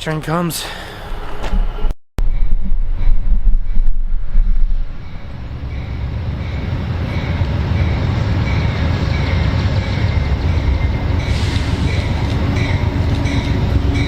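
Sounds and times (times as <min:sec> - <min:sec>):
train rumble: 0:01.0 - 0:14.0.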